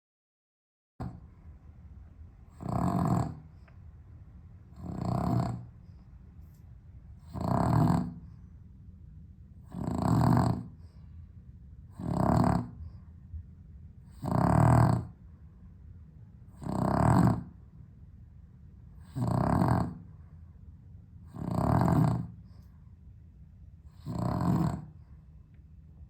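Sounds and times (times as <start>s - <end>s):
dog snoring loudly: 1.0s - 1.2s, 2.5s - 3.6s, 4.7s - 5.8s, 7.2s - 8.4s, 9.6s - 11.0s, 11.9s - 13.0s, 14.1s - 15.2s, 16.5s - 17.6s, 19.0s - 20.1s, 21.2s - 22.6s, 23.9s - 25.0s.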